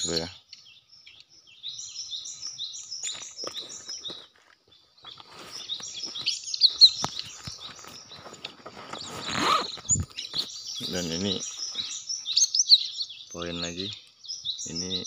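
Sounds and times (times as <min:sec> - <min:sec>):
birds chirping: 0:00.0 - 0:15.0
rustle of vegetation: 0:05.0 - 0:12.4.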